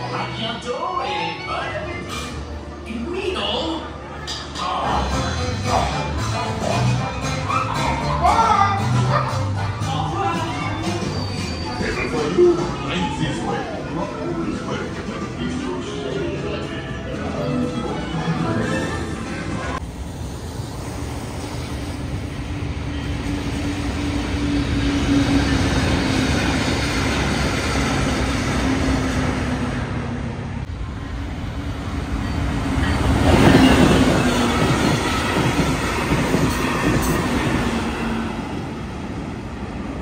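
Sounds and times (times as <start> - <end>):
train wheels rumbling on rail: 19.4 - 40.0.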